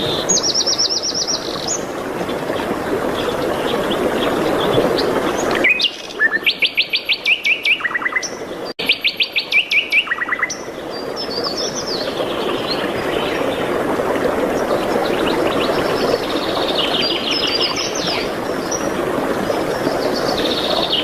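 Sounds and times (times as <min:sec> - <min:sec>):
songbird singing: 0:03.2 - 0:13.8, 0:14.6 - 0:18.9.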